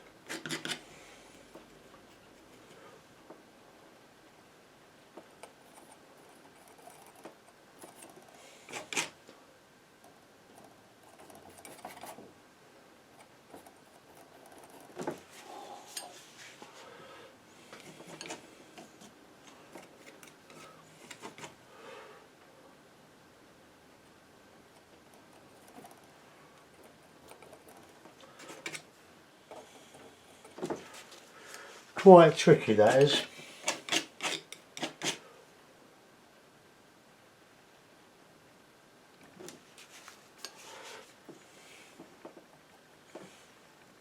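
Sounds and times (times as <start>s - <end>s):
painting knife scraping: 0.3s - 1.0s, 5.4s - 9.2s, 17.7s - 21.6s, 27.3s - 28.9s, 32.8s - 35.3s.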